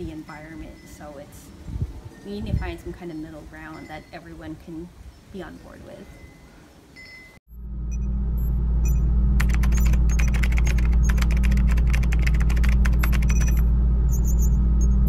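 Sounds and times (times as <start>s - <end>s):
deep drone: 7.5s - 15.0s
rapid typing clicks: 9.4s - 13.6s.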